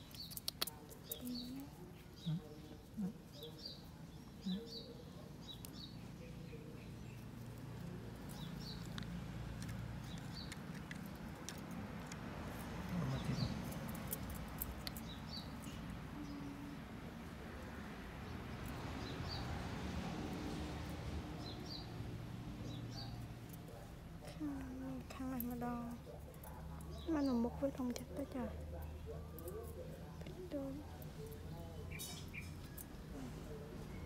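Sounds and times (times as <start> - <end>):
small bird chirping: 0.0 - 11.8, 22.6 - 33.1.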